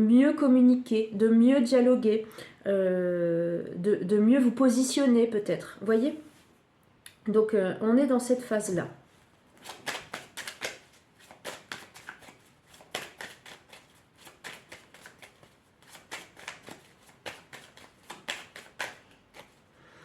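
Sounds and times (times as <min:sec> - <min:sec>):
cards being shuffled: 0:09.5 - 0:19.6.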